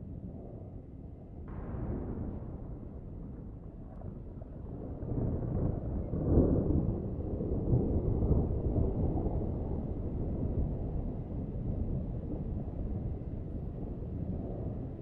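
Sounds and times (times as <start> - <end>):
rolling thunder rumbling: 1.5 - 15.0.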